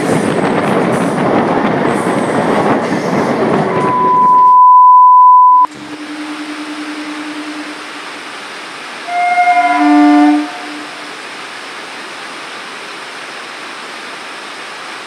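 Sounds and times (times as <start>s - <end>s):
train wheels rumbling on rail: 0.0s - 4.1s
loud steady beep: 3.7s - 5.7s.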